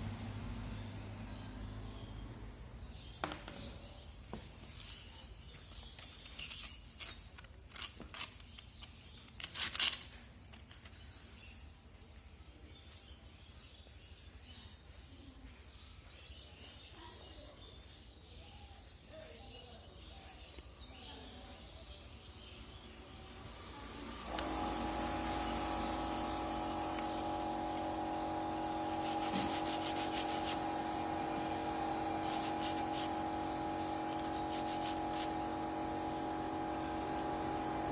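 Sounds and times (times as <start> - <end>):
motor hum: 0.0 - 2.5, 22.6 - 37.9.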